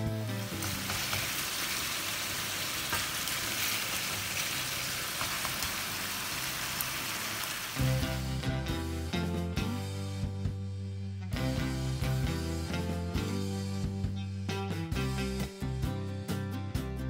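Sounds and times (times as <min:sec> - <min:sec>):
chicken sizzling in a frying pan: 0:00.0 - 0:09.2.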